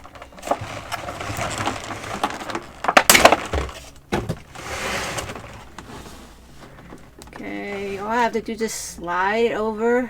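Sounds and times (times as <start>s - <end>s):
plastic snapping: 0.0s - 4.5s
plastic carton crinkling and cracking: 0.0s - 5.9s.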